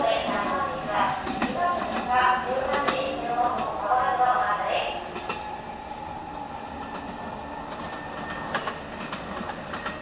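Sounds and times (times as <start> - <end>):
train rolling rumble: 0.0 - 10.0.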